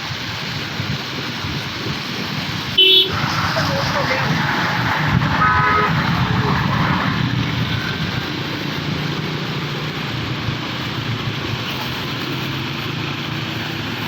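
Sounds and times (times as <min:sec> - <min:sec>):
heavy rain: 0:00.0 - 0:14.0
traffic on wet road: 0:00.0 - 0:14.0
short horn toot: 0:05.1 - 0:06.8.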